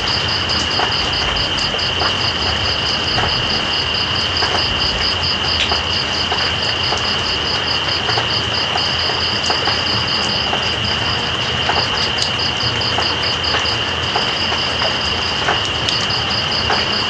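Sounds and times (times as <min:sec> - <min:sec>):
steady rain: 0:00.0 - 0:17.0
water drip clicks: 0:04.3 - 0:17.0.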